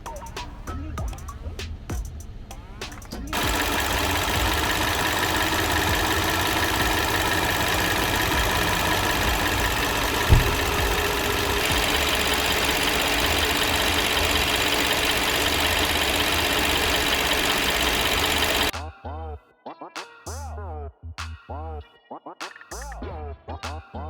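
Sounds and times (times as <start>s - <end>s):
car engine idling: 1.3s - 18.7s
thump: 10.1s - 11.0s.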